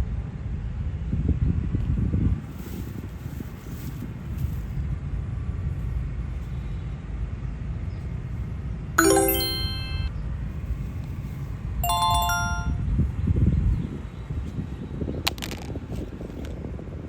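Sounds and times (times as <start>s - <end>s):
bright bell-like chimes: 9.0s - 10.1s, 11.8s - 12.8s.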